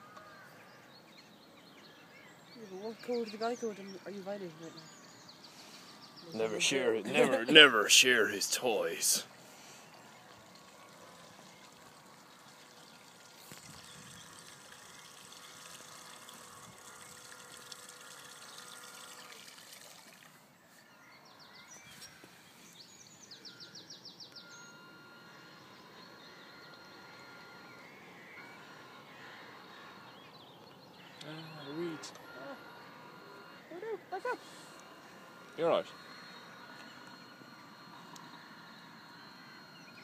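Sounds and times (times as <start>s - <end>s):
thin steady whine: 0.0s - 40.0s
water rippling: 10.4s - 20.5s.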